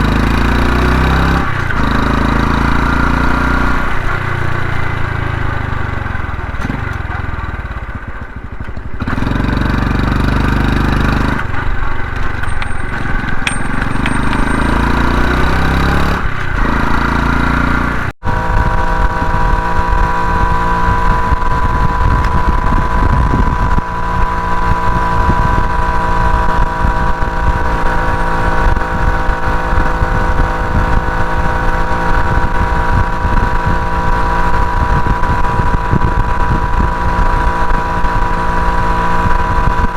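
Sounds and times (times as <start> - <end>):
motorcycle engine running: 0.0 - 39.9
wind on microphone: 18.3 - 39.9.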